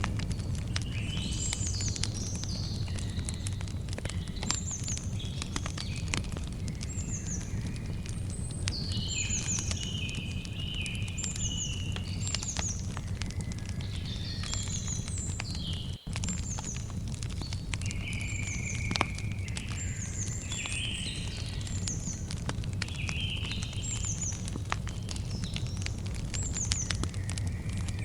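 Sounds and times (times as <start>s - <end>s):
campfire crackling and popping: 0.0s - 28.0s
birds chirping: 0.1s - 28.0s
birds whistling: 0.8s - 16.9s, 17.8s - 22.3s.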